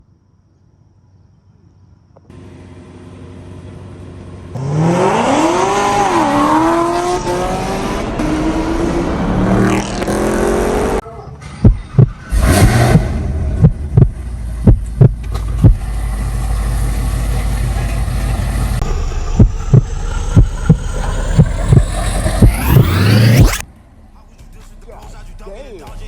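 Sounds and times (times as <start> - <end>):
car engine revving: 2.3 - 11.0, 11.6 - 26.0
heavy thumps: 11.6 - 15.8.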